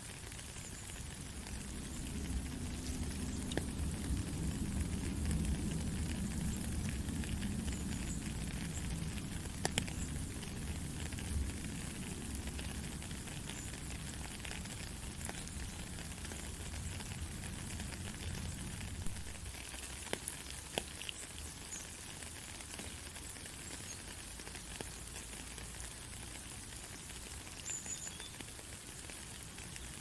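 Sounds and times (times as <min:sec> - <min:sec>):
heavy rain falling: 0:00.0 - 0:30.0
sharp raindrop ticks: 0:00.0 - 0:30.0
low rumble: 0:01.2 - 0:19.4.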